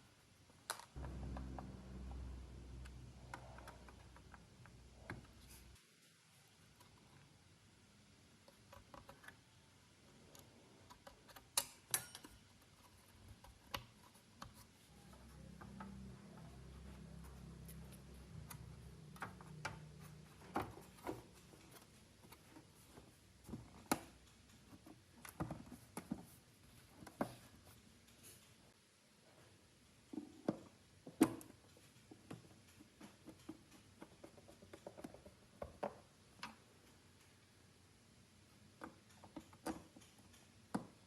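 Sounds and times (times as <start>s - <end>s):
soft low hum: 1.0s - 5.8s
small hard parts clicking and tapping: 8.4s - 28.8s, 30.1s - 37.8s, 38.4s - 41.0s.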